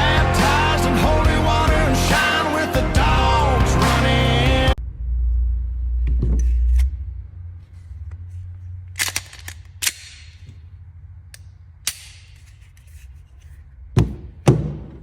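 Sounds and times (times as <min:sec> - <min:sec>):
low steady rumble: 0:04.4 - 0:14.0.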